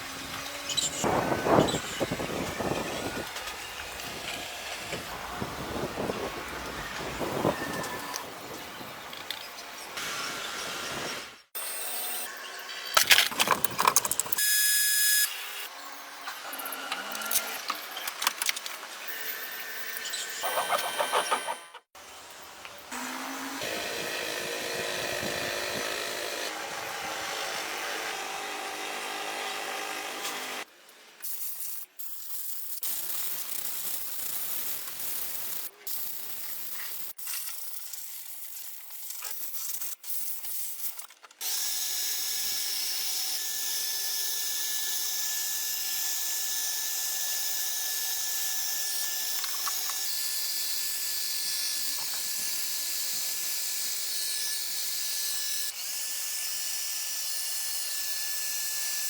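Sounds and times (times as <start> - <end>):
workshop tool noises: 12.2 - 15.5, 16.2 - 21.9.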